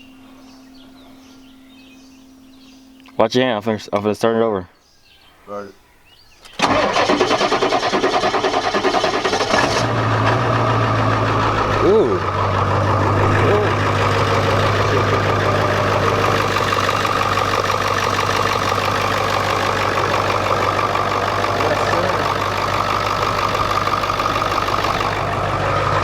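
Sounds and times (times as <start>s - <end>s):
diesel engine idling: 6.6s - 26.0s.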